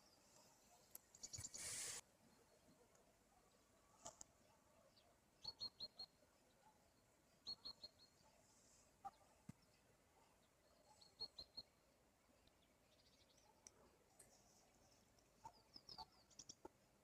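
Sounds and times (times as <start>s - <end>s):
small bird chirping: 0.0s - 2.7s, 4.9s - 8.3s, 9.0s - 11.8s, 12.4s - 16.7s.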